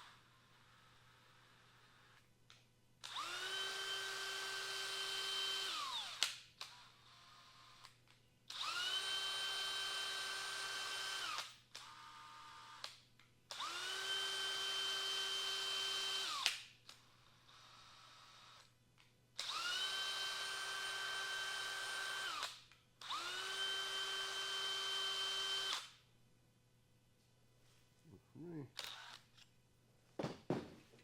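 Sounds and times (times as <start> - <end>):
electric drill whining: 3.0 - 7.9, 8.5 - 12.9, 13.5 - 16.5, 19.4 - 26.0, 28.8 - 29.4
drill click: 28.8 - 29.5.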